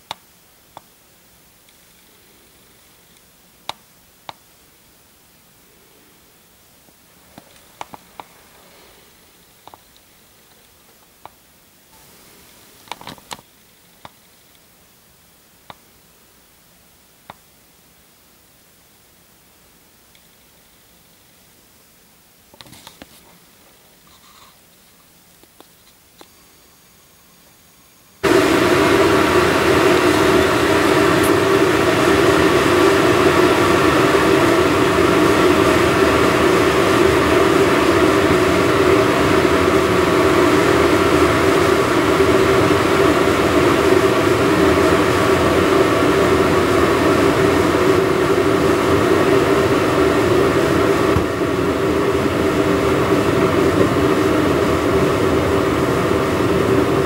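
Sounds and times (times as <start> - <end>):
machine running with hum: 26.2 - 57.0.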